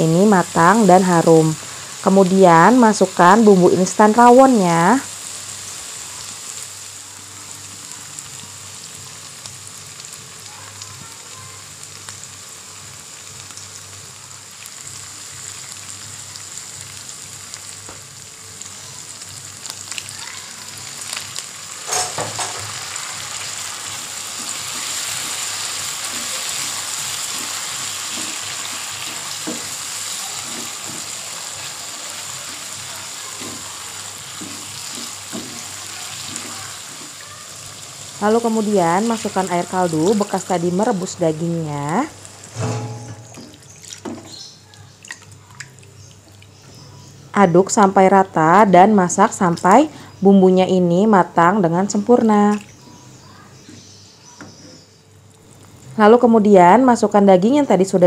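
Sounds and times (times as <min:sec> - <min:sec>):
spice paste sizzling in oil: 0:00.0 - 0:42.6, 0:43.2 - 0:48.0, 0:53.1 - 0:55.0.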